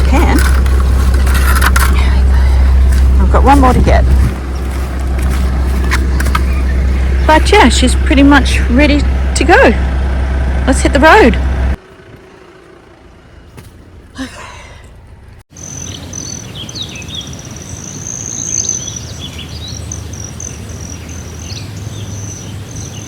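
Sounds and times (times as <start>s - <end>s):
birds chirping and calling: 0.0s - 9.4s, 15.6s - 23.0s
outdoor background noise: 0.0s - 23.0s.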